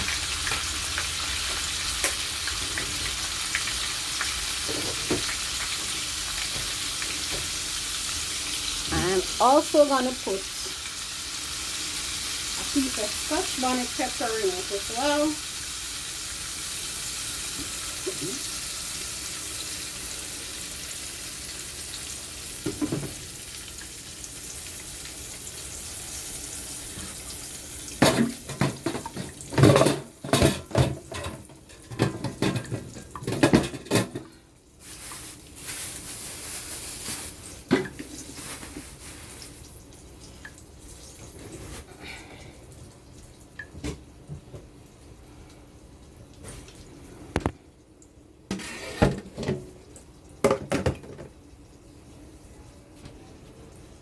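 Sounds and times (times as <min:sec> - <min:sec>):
pots and dishes clattering: 0:04.5 - 0:07.6, 0:17.5 - 0:18.5, 0:22.6 - 0:23.3, 0:27.9 - 0:34.4, 0:37.1 - 0:39.0, 0:48.5 - 0:49.8, 0:50.4 - 0:51.4.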